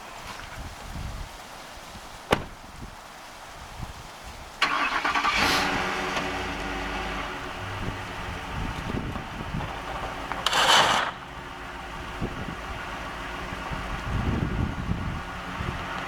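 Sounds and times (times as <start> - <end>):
truck engine starting and idling: 4.6 - 16.0.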